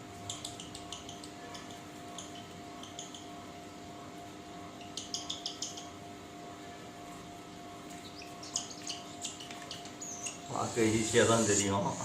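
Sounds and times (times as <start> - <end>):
cockatiel chick begging chirps: 8.0 - 10.5.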